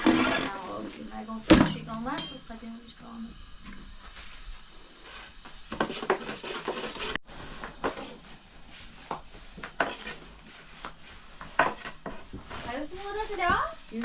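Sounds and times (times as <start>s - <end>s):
dishes and utensils clinking: 2.1s - 2.6s.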